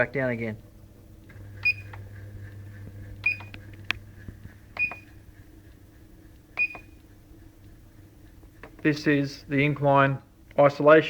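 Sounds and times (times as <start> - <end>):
treadmill running hum: 0.9 - 10.0
treadmill console beeps: 1.6 - 2.0, 3.2 - 3.6, 4.8 - 5.2, 6.6 - 7.0.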